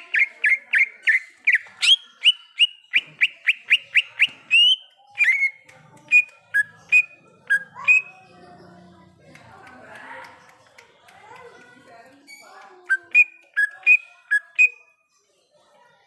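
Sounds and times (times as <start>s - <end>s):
bird singing whistled notes: 0.0s - 5.6s, 12.3s - 14.8s.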